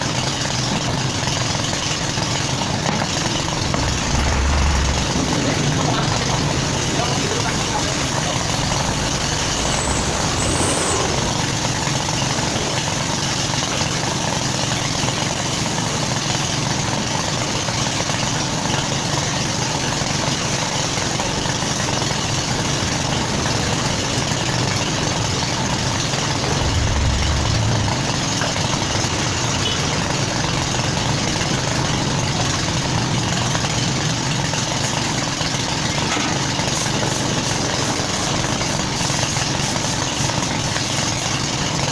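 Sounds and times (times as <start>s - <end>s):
heavy engine idling: 0.0s - 41.9s
deep low rumble: 2.6s - 13.2s, 23.7s - 32.0s.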